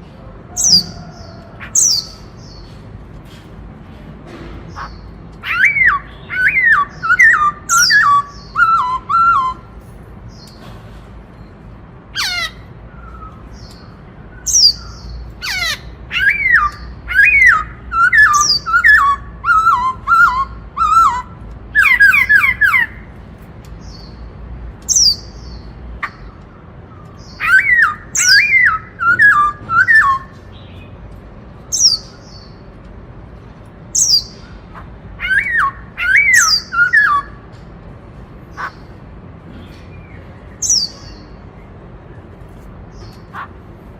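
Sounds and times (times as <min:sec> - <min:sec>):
bird song: 0:00.0 - 0:43.9.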